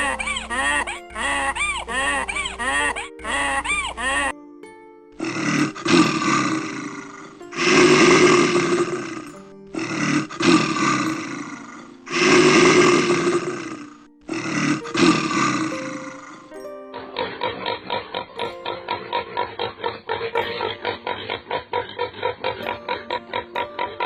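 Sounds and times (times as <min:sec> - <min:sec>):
soft background music: 0:00.0 - 0:24.0
lion roaring: 0:05.2 - 0:16.5.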